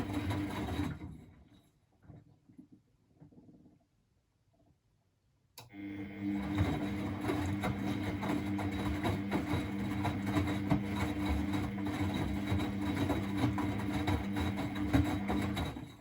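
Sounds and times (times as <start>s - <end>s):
washing machine running: 0.0s - 1.5s, 5.7s - 16.0s.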